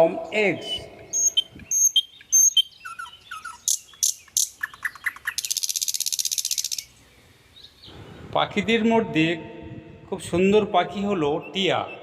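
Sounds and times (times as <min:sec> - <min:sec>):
high bird trill: 0:00.2 - 0:08.2
bird chirping and whistling: 0:00.6 - 0:06.9.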